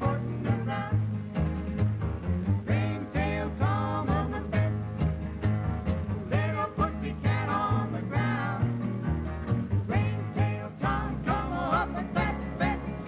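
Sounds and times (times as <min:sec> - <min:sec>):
bass line: 0:00.0 - 0:13.0
folk song on acoustic guitars: 0:00.0 - 0:13.0.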